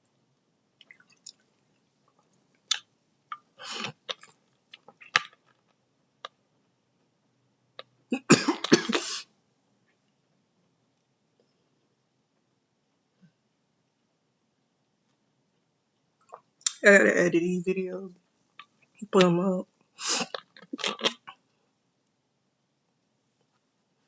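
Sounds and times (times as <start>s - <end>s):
person coughing: 8.1s - 9.2s.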